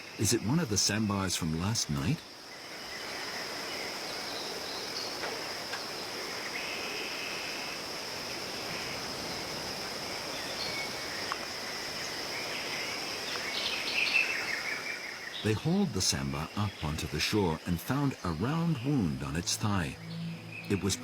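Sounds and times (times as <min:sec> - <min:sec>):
even hiss: 0:00.0 - 0:21.0
high-pitched insect drone: 0:15.6 - 0:21.0.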